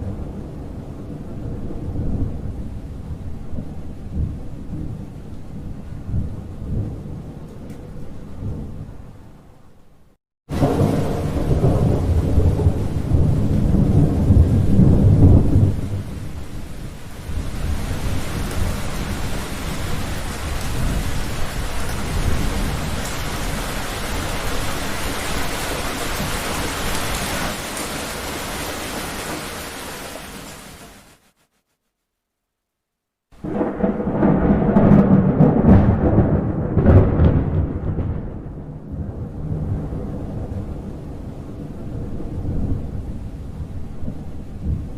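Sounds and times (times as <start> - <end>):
thunder rumble: 0.0 - 9.5, 10.5 - 30.3, 33.4 - 44.9
heavy rain: 10.5 - 31.4, 33.4 - 44.9.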